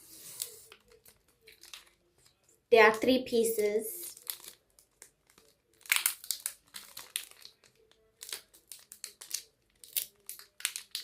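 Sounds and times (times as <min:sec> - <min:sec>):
plastic wrapper crinkling: 0:00.0 - 0:03.0, 0:04.0 - 0:11.0.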